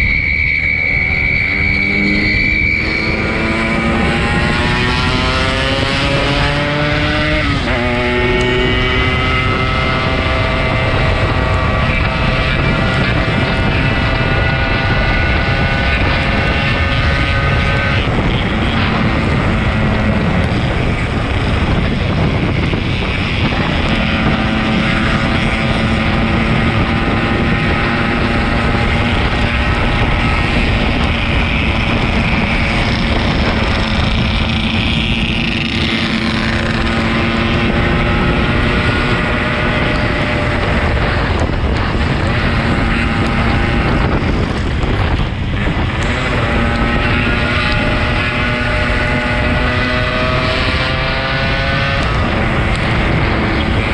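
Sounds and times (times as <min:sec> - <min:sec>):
wind buffeting microphone: 0:00.0 - 0:53.9
motorcycle engine running: 0:01.8 - 0:53.9.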